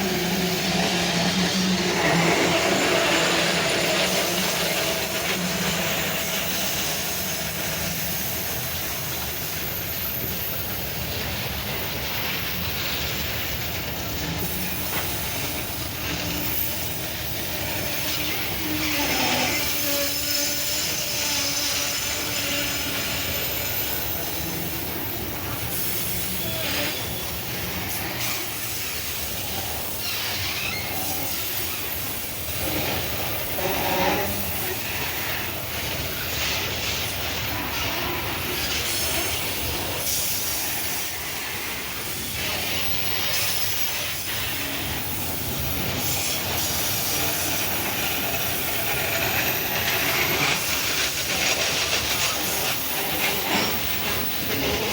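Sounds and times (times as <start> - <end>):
freight wagons rolling on rails: 0.0 - 54.9
steel wheels squealing: 0.0 - 54.9.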